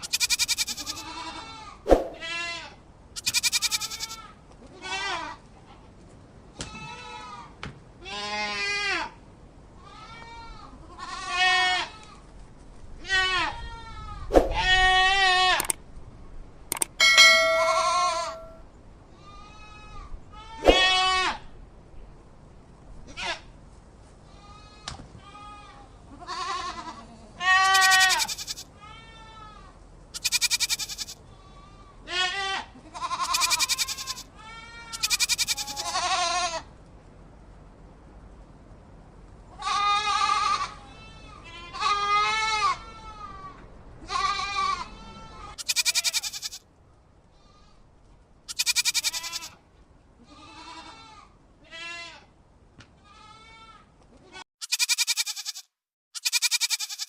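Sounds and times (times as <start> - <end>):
goats bleating: 0.0 - 5.4, 24.4 - 29.5, 30.2 - 36.6, 39.6 - 43.4, 44.0 - 46.6, 48.5 - 49.6, 53.1 - 55.6, 56.2 - 57.0.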